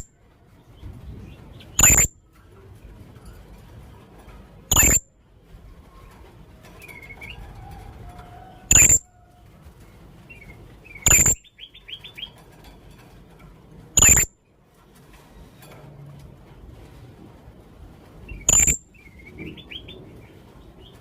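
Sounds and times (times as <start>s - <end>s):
parrot giving shrill calls: 4.7s - 5.0s, 8.7s - 9.1s, 11.0s - 11.4s, 18.5s - 18.8s.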